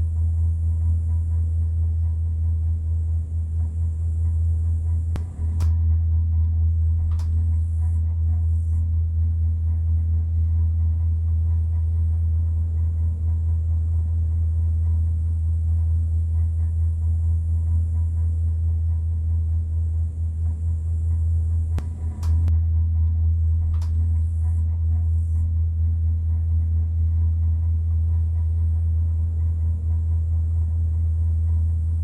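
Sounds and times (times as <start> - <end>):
gondola cabin rumble and hum: 0.0 - 32.0
sharp clicks: 5.2 - 5.8, 7.1 - 7.5, 21.8 - 22.5.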